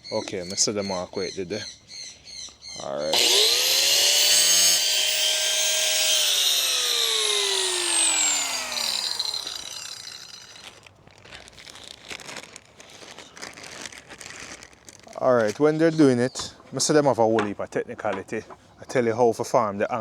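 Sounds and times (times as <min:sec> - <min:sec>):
power tool motor whine: 0:03.1 - 0:10.8
tool cutting through plastic: 0:03.1 - 0:10.8.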